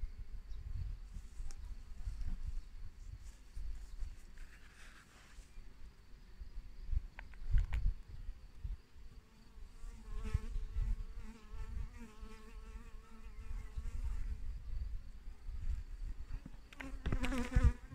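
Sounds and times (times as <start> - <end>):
flying insect buzzing: 9.3 - 14.6, 16.3 - 17.9.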